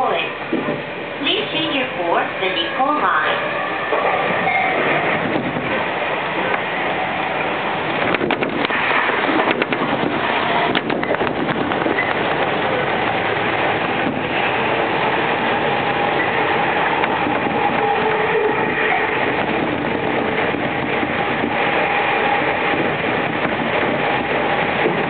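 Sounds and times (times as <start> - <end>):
train wheels rushing on rail: 0.0 - 25.0
wheels clicking over rail joints: 7.4 - 25.0.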